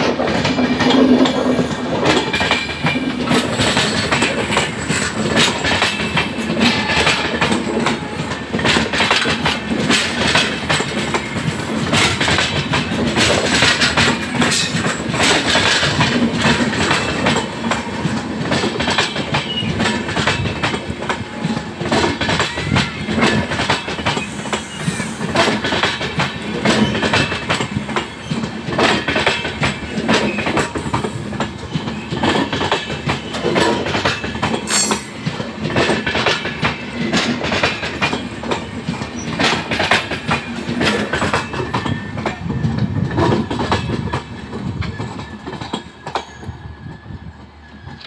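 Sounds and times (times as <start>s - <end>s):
train wheels clattering: 0.0s - 48.0s
wheel squeal: 41.2s - 48.0s.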